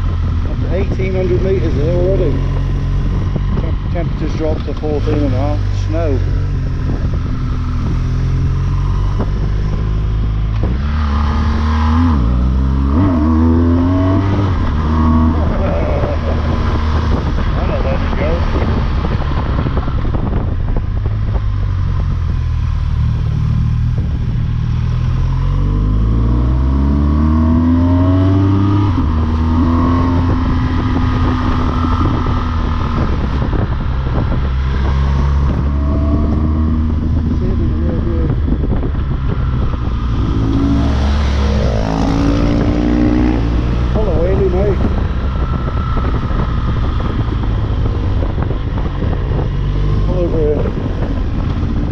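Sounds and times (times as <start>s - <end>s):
motorcycle engine revving: 0.0s - 51.9s
wind and road noise: 0.0s - 51.9s.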